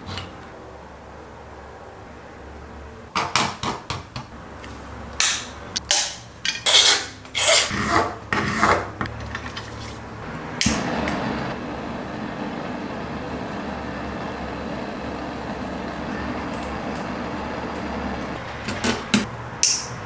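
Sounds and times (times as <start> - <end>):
steady low hum: 10.2 - 19.3.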